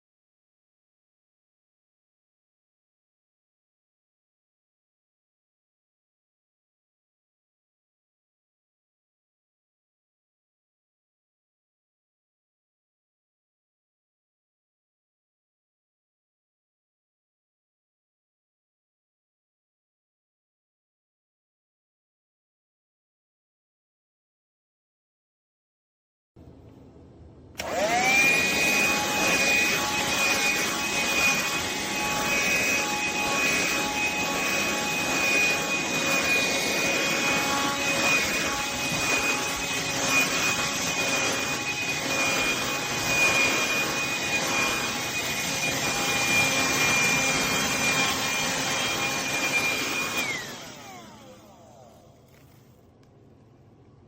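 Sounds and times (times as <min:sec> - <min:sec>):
handheld vacuum motor whining: 0:27.6 - 0:53.1.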